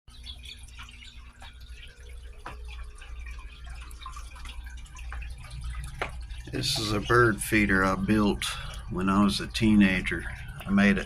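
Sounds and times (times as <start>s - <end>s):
low steady hum: 0.1s - 11.0s.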